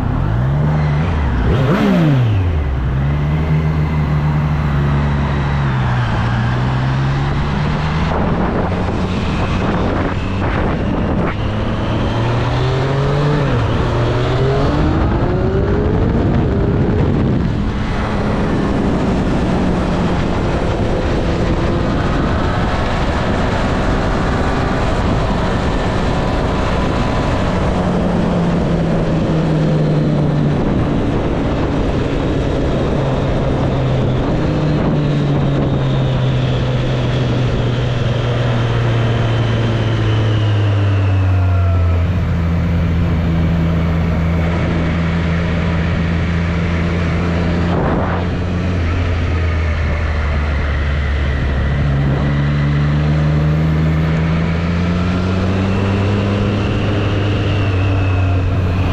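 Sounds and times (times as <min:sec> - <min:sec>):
wind and road noise: 0:00.0 - 0:58.9.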